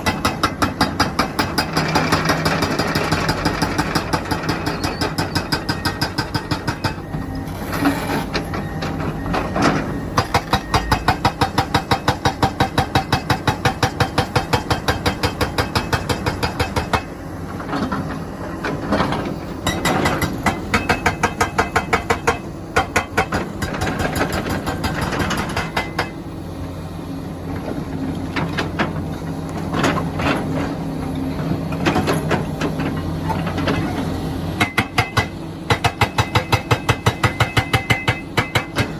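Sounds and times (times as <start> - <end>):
hydraulic breaker hammering stone: 0.0 - 7.1, 10.2 - 17.2, 19.6 - 26.2, 34.6 - 38.9.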